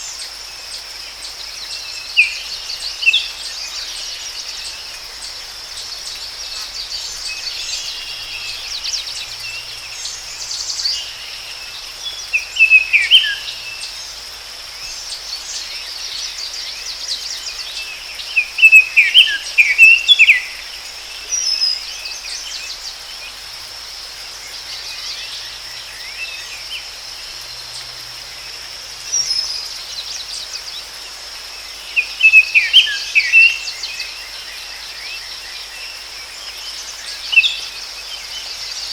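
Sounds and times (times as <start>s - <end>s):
high insect drone: 0.0s - 38.9s
bird chirping: 1.7s - 14.1s, 16.4s - 20.6s, 31.9s - 34.3s.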